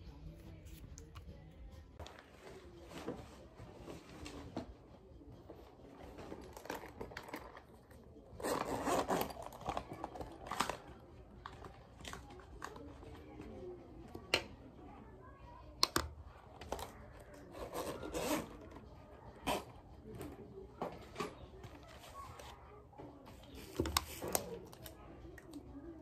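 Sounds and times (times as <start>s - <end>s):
rummaging in a bag: 5.6s - 13.5s.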